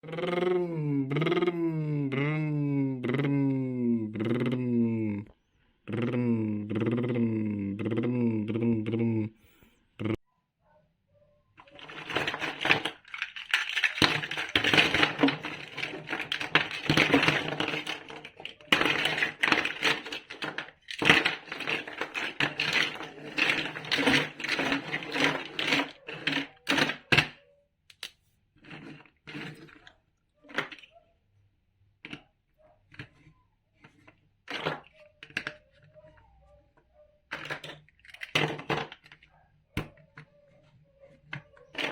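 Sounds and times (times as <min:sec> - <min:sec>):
plastic blocks clattering: 0:11.6 - 0:30.9, 0:32.9 - 0:35.9, 0:37.3 - 0:40.3, 0:41.1 - 0:41.9
clicks of pieces being handled: 0:11.7 - 0:29.9, 0:37.3 - 0:40.3.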